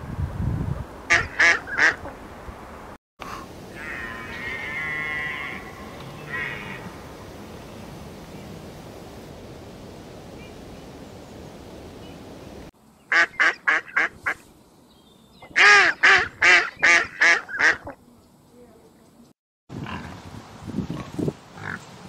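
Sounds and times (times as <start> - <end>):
waterfowl harsh calls: 1.1 - 2.1, 3.7 - 7.0, 13.1 - 14.4, 15.6 - 18.0
background hiss: 2.2 - 15.8.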